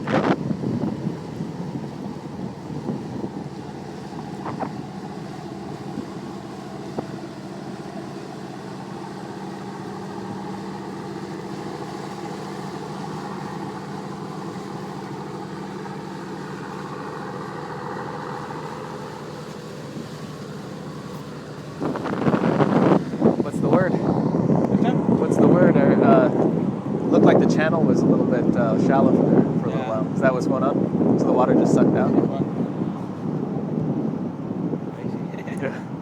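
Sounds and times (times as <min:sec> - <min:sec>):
wind noise: 0:00.0 - 0:05.1, 0:21.7 - 0:36.0
boat engine running: 0:00.0 - 0:36.0.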